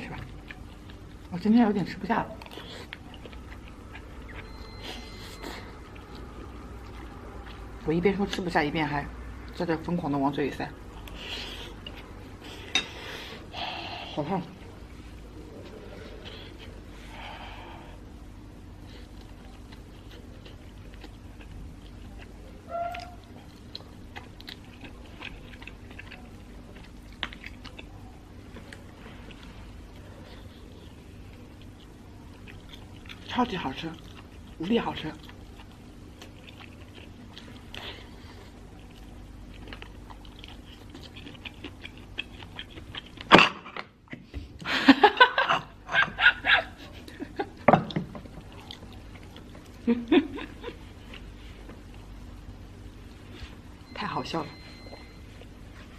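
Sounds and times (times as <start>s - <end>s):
close chewing with mouth clicks: 0.0s - 8.5s, 10.9s - 13.4s, 18.8s - 44.4s, 46.6s - 52.2s.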